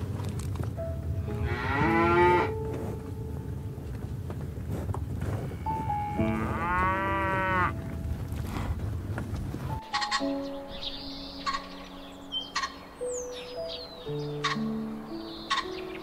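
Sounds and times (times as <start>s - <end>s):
cattle mooing: 5.9s - 7.8s.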